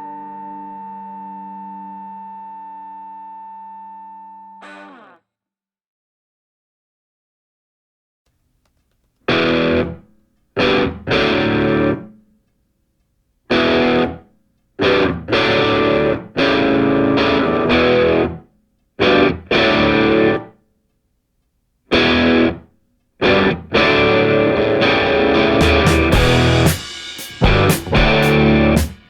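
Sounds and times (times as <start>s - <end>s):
distorted electric guitar chords: 9.3s - 10.0s, 10.6s - 12.1s, 13.5s - 14.2s, 14.8s - 18.4s, 19.0s - 20.5s, 21.9s - 22.6s, 23.2s - 29.0s.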